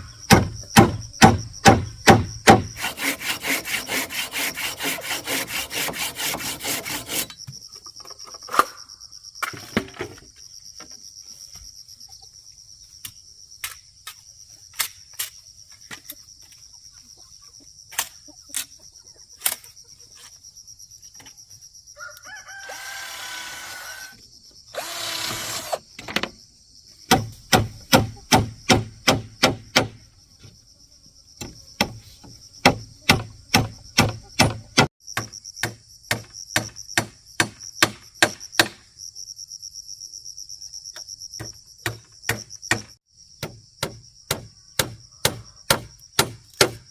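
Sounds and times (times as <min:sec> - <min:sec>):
hand saw on wood: 0:02.1 - 0:07.4, 0:24.8 - 0:25.8
high insect buzz: 0:20.2 - 0:46.9
rooster crowing: 0:22.0 - 0:24.1.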